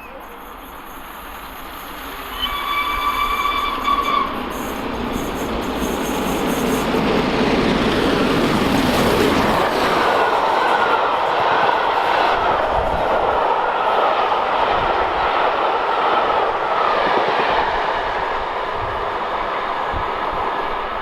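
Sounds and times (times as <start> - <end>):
steam locomotive whistle: 0.0 - 6.9
train rumbling: 0.0 - 21.0.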